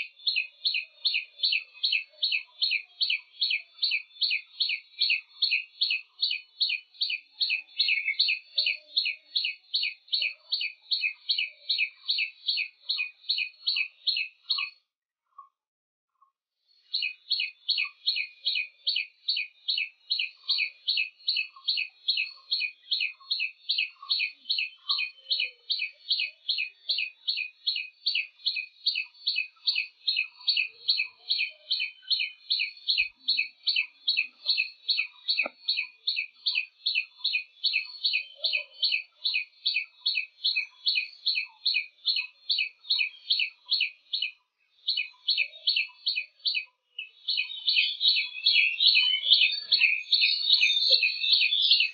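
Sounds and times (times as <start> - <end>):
bird chirping: 0.0 - 15.5, 16.7 - 51.9.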